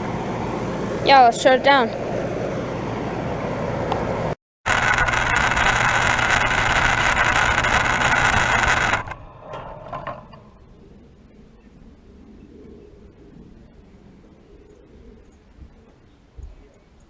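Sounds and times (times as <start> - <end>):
air conditioner hum and fan: 0.0 - 4.4.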